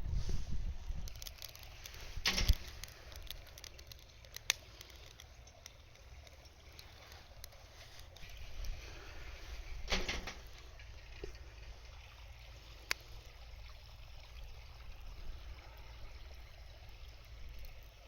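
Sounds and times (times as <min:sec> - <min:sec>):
wood fire crackling: 0:00.0 - 0:13.8.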